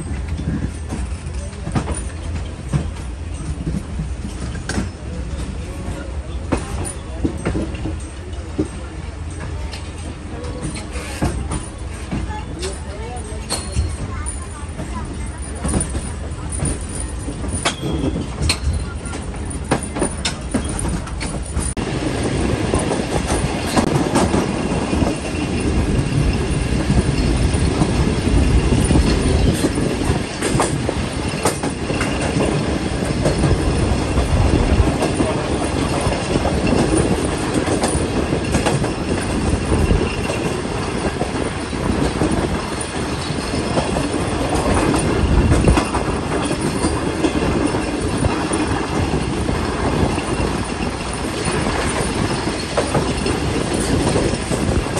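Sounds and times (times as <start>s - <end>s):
clacks over rail joints: 0.0s - 54.9s
wheels rumbling on rail: 0.0s - 54.9s.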